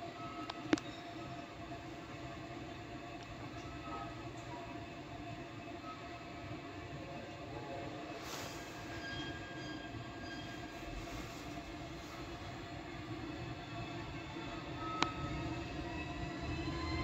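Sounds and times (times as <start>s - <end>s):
train rumbling: 0.0s - 17.0s
wheels and brakes squealing: 8.2s - 12.5s.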